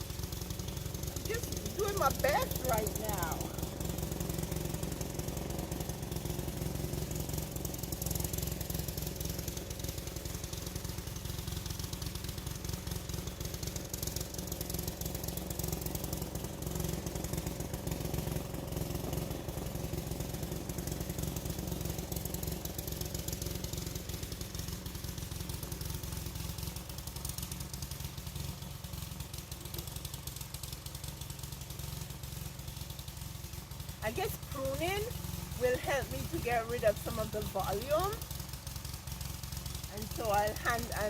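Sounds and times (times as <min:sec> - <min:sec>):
small engine running steadily: 0:00.0 - 0:41.0.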